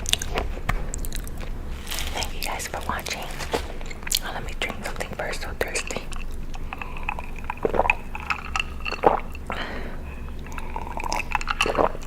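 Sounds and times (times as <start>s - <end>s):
wet mouth clicks: 5.7s - 9.6s, 10.3s - 12.0s
person gulping: 5.9s - 12.0s.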